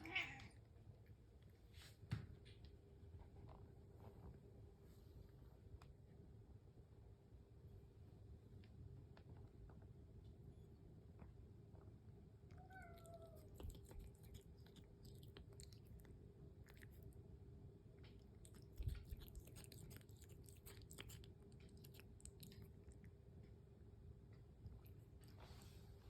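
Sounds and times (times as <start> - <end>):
cat meowing: 0.0 - 0.6, 12.5 - 13.8
cat crunching food: 13.0 - 25.4.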